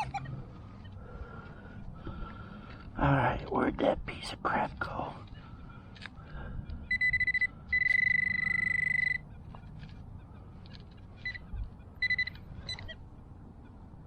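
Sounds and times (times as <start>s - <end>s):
metal detector beeps: 6.8s - 9.7s, 11.1s - 13.0s
metal detector tone: 6.9s - 9.2s, 11.2s - 13.0s.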